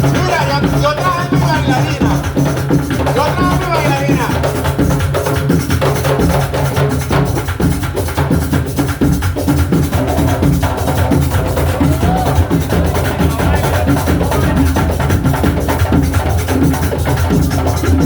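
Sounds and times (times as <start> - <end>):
drum ensemble playing: 0.0 - 18.0.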